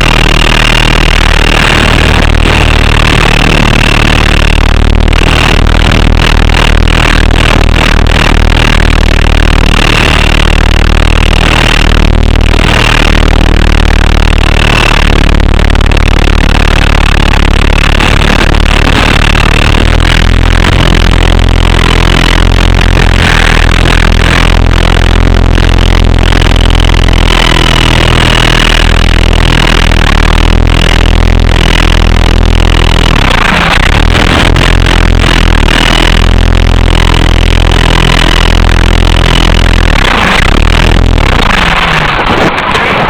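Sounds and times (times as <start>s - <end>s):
electric motors whining: 0.0s - 42.5s.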